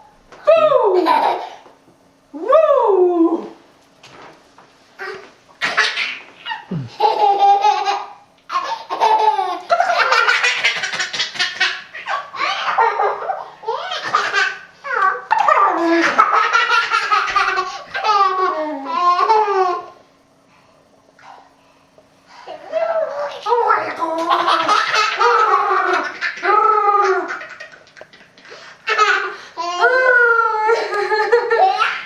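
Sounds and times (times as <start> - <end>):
young child laughing: 5.0 - 20.0, 22.5 - 32.0.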